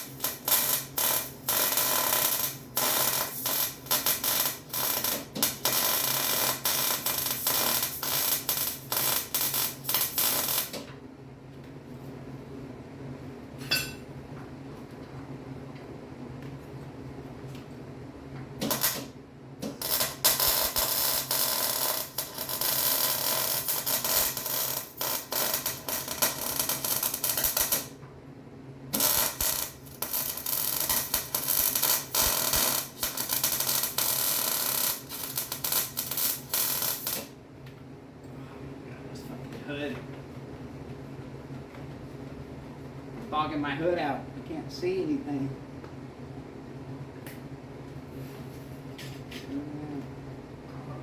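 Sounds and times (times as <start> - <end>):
arc welding crackle: 0.0 - 10.9, 18.6 - 28.0, 28.9 - 37.4.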